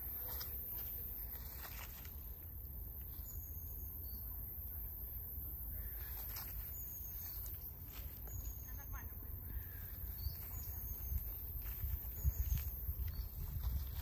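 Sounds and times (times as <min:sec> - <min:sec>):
faint bird chirps: 0:05.7 - 0:13.9.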